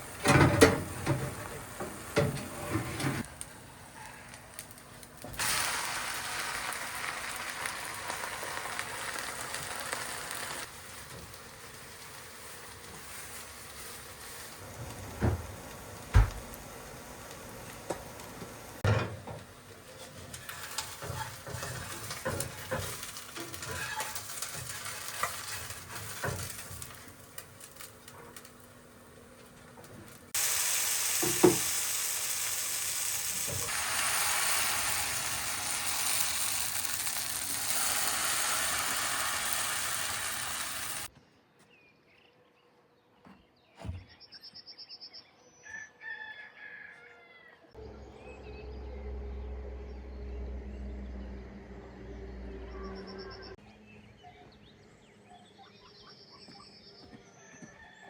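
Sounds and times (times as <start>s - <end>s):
food sizzling in a frying pan: 5.4s - 14.7s, 20.3s - 27.6s, 30.4s - 41.1s
rooster crowing: 45.6s - 47.7s.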